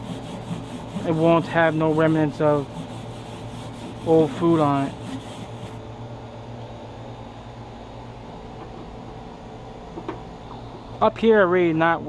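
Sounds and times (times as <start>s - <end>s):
grill grate being scraped: 0.0s - 5.8s
low background hum: 0.0s - 12.0s.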